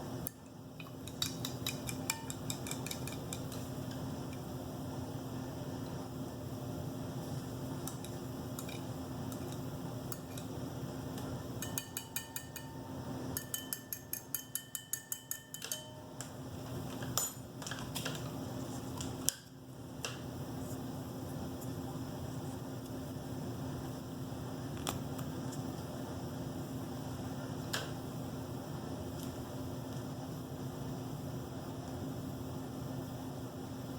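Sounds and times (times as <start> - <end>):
steady low hum: 0.0 - 33.9
spoon clinking against cup: 0.8 - 3.7, 11.6 - 16.2.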